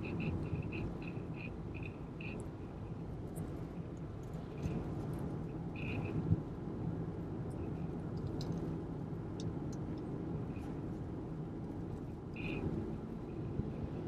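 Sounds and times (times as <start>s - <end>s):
car engine and road noise: 0.0s - 14.0s
faint light ticks: 7.5s - 11.0s.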